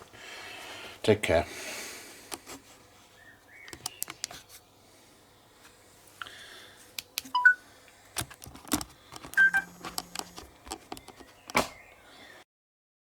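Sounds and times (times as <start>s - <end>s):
short electronic beeps: 7.4s - 7.6s, 9.4s - 10.4s
handling clicks and knocks: 8.2s - 11.7s.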